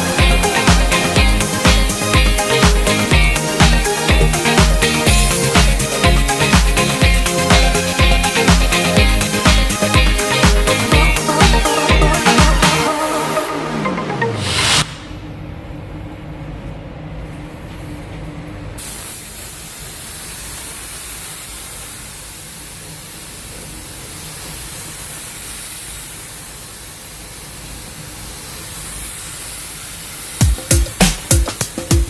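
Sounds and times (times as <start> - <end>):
paint spray gun hissing: 0.0 - 13.4, 28.2 - 32.0
low hum: 0.0 - 17.6.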